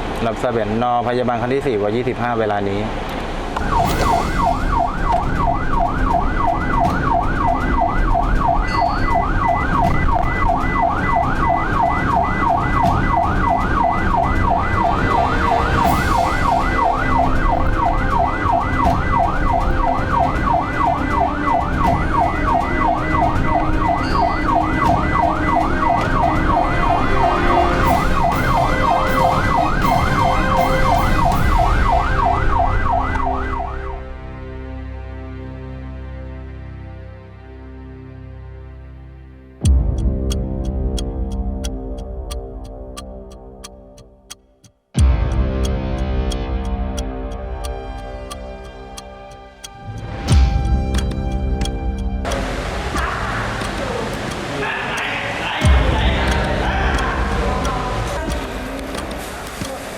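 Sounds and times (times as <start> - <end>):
ambulance siren yelping: 3.6 - 34.2, 52.2 - 59.7
vehicle rumbling on road: 45.6 - 59.9.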